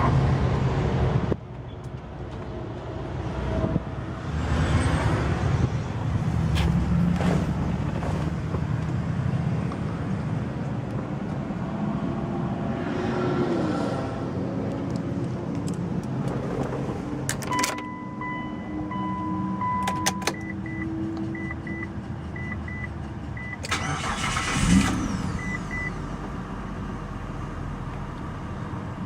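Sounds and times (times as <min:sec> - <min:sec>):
car chime beeping: 0:17.5 - 0:24.4
car engine idling: 0:20.6 - 0:29.0.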